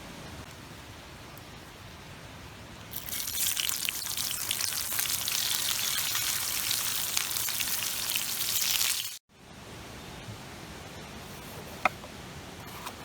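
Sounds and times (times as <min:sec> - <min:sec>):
food sizzling in hot oil: 0:02.9 - 0:09.2.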